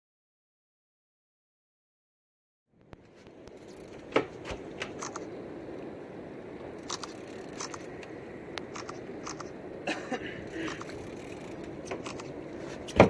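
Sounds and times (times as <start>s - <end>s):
steady rushing noise: 2.8s - 13.0s.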